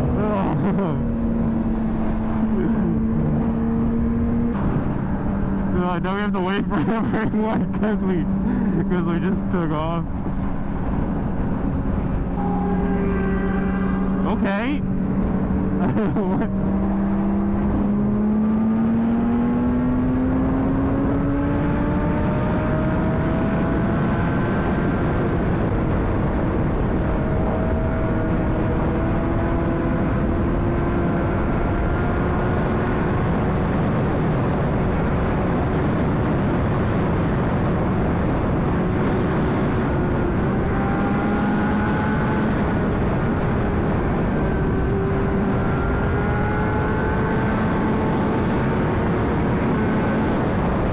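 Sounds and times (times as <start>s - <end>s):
motorcycle engine accelerating: 0.0s - 50.9s
wind rush on microphone: 0.0s - 50.9s.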